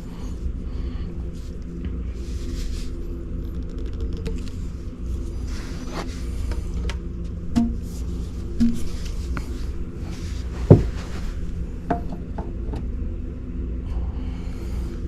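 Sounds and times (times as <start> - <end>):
sharp knocks and clicks: 7.6 - 8.0, 8.6 - 9.0, 11.9 - 12.8.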